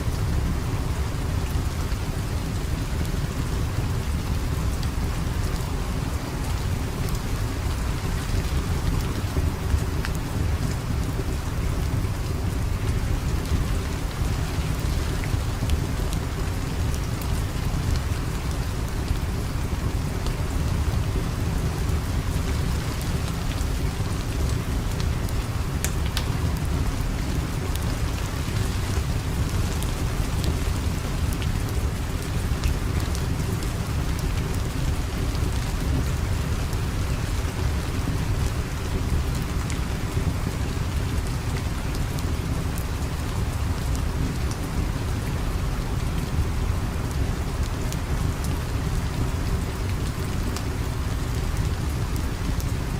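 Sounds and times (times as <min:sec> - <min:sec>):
steady rain: 0:00.0 - 0:52.9
wood fire crackling: 0:06.8 - 0:42.0.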